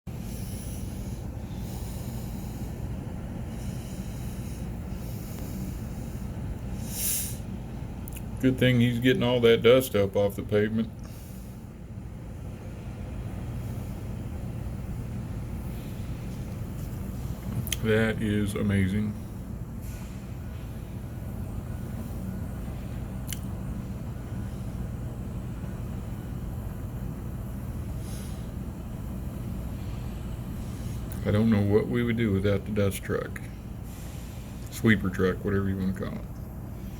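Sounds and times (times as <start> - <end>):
street sweeper truck rumbling: 19.8 - 23.1.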